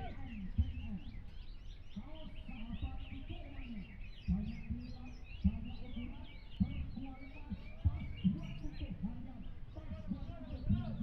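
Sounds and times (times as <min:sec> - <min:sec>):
murmur of voices: 0:00.0 - 0:01.2
songbirds chirping and trilling: 0:00.0 - 0:11.0.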